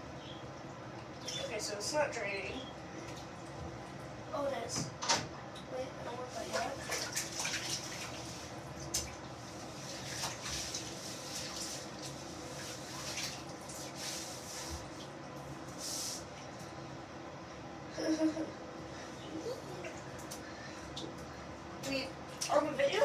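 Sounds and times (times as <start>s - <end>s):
water splashing in bathtub: 6.2s - 16.3s.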